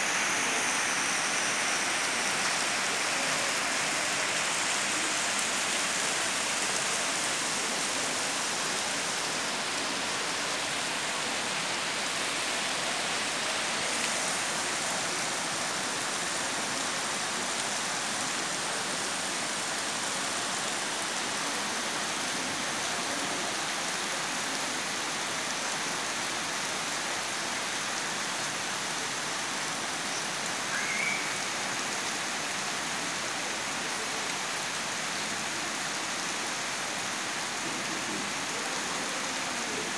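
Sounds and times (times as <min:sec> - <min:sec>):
heavy rain pouring: 0:00.0 - 0:39.9
faint chirp: 0:30.1 - 0:31.6.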